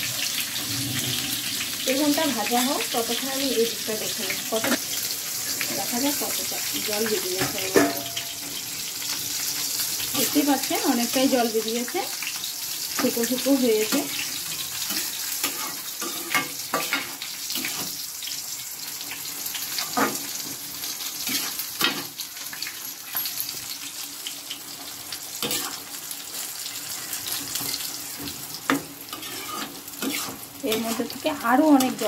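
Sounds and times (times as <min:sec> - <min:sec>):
greens sizzling in a pan: 0:00.0 - 0:32.0
spatula scraping metal pan: 0:26.7 - 0:31.2.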